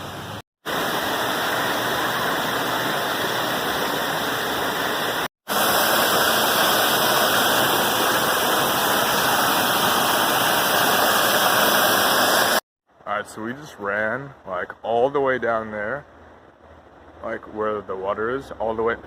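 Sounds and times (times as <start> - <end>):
waterfall rushing: 0.7 - 12.6.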